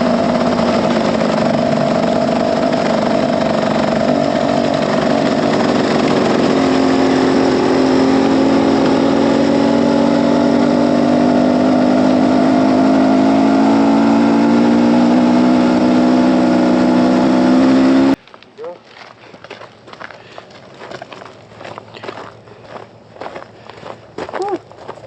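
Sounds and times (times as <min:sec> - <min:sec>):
dirt bike engine running: 0:00.0 - 0:18.2.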